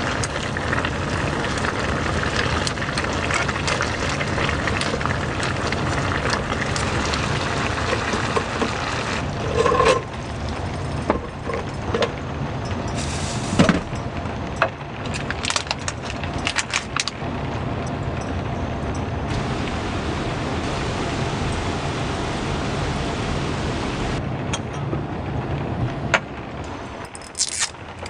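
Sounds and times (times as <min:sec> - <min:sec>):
heavy rain falling: 0:00.0 - 0:09.4, 0:19.3 - 0:24.2.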